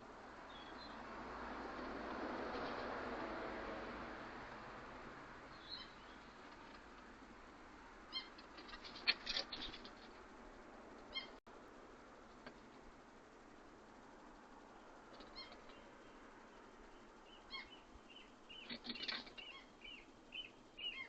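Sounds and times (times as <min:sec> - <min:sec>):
low steady hiss: 0:00.0 - 0:21.0
short bird calls: 0:15.2 - 0:15.9, 0:17.3 - 0:21.0.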